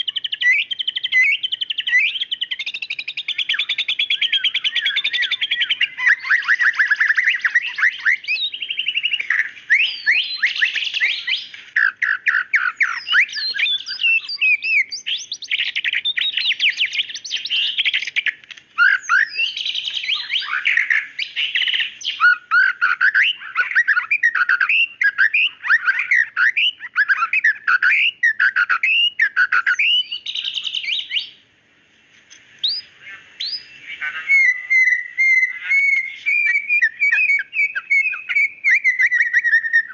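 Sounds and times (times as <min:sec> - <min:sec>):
bird singing whistles and chirps: 0:00.0 - 0:31.4, 0:32.6 - 0:39.9.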